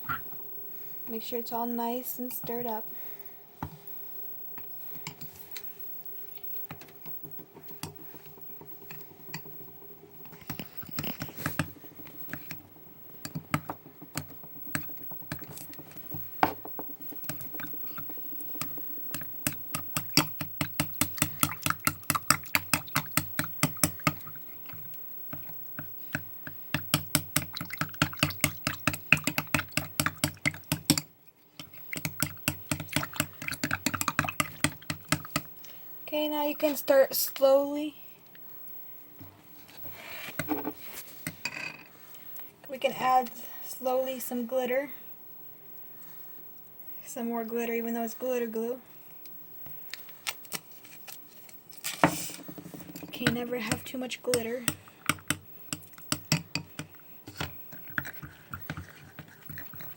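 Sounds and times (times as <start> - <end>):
utensil stirring in a bowl: 4.6 - 35.8, 52.0 - 59.9.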